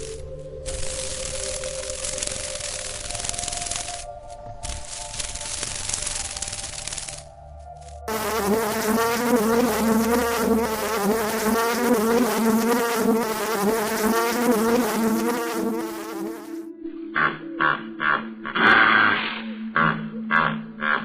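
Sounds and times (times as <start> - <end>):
insect buzzing: 0.0 - 16.7.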